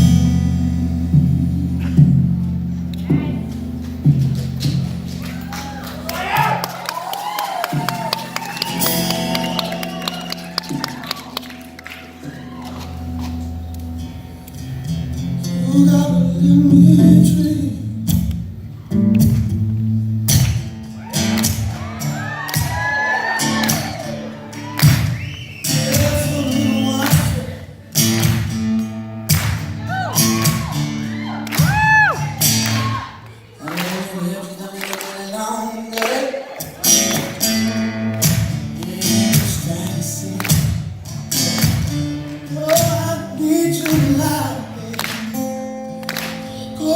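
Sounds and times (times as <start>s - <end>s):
acoustic guitar strumming: 0.0s - 7.0s, 7.7s - 35.9s, 36.6s - 46.9s
person singing wordlessly: 15.5s - 18.1s, 25.8s - 27.8s, 33.5s - 40.8s, 42.4s - 45.5s, 46.6s - 46.9s.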